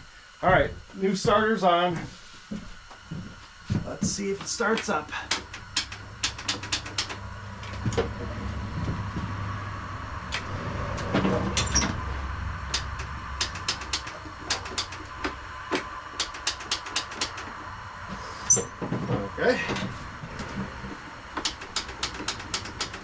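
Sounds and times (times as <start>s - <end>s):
starter motor droning: 4.2s - 23.0s
sharp clicks: 4.7s - 7.8s, 12.7s - 17.5s, 21.4s - 23.0s.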